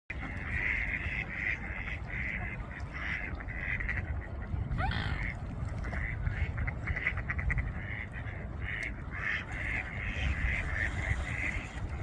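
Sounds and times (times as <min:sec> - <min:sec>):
ducks quacking: 0:00.1 - 0:12.0.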